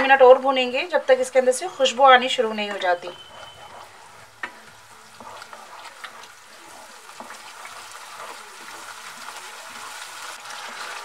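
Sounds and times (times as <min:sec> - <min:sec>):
paste sizzling in oil: 0:01.6 - 0:11.0
wooden spatula scraping pan: 0:01.8 - 0:11.0
spatula tapping pan: 0:02.5 - 0:11.0.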